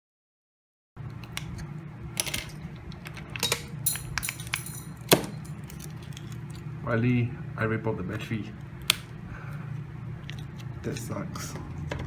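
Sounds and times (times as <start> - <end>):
steady low hum: 1.0 - 12.0
small tools clicking and scraping: 2.2 - 6.6.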